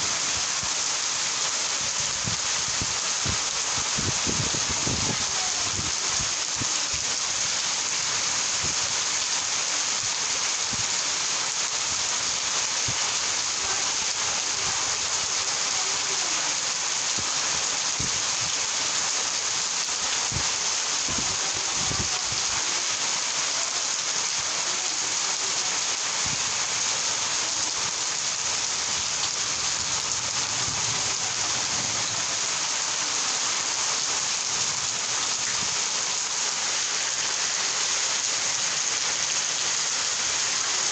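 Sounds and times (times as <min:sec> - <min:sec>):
heavy raindrops striking: 0:00.0 - 0:40.9
rain hissing: 0:00.0 - 0:40.9.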